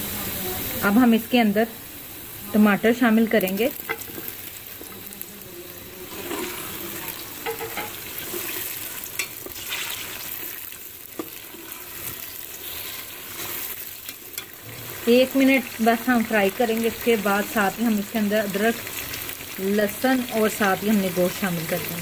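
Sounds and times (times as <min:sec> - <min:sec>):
vegetables sizzling in oil: 0:00.0 - 0:22.0
spoon clinking against pot: 0:07.4 - 0:08.0.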